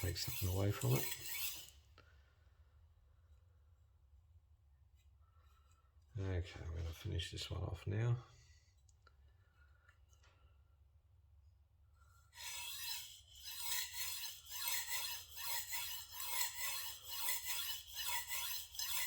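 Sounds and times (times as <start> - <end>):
knife blade scraping on sharpening stone: 0.0 - 1.7, 12.4 - 19.0.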